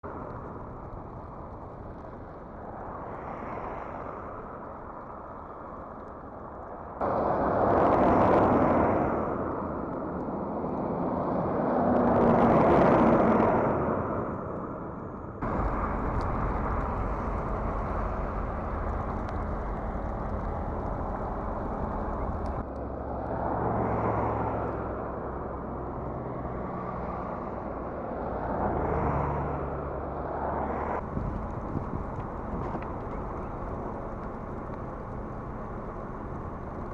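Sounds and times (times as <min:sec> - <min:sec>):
vehicles passing on snowy highway: 0:00.0 - 0:36.9
steady rushing background: 0:13.1 - 0:23.5, 0:29.8 - 0:36.9.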